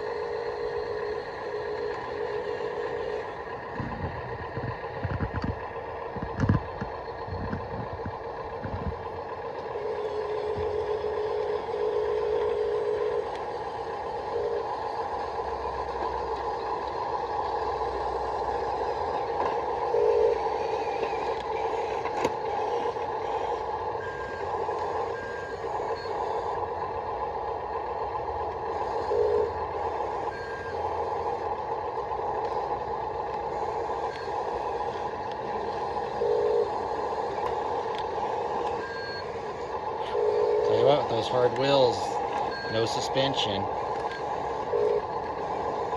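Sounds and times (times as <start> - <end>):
electric gear motors whining: 0.0 - 45.9
lower-pitched motor bursts: 32.2 - 45.9.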